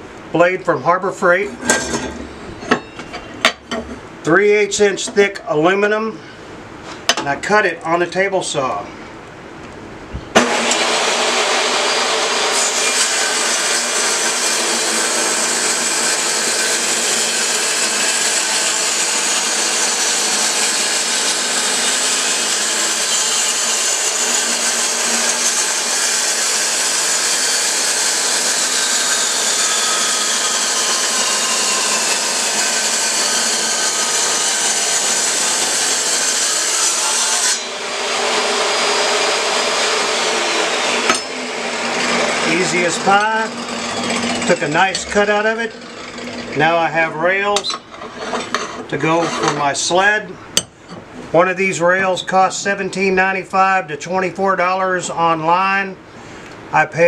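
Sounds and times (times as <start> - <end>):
saw motor running: 10.4 - 46.8
table saw cutting metal: 10.4 - 49.8.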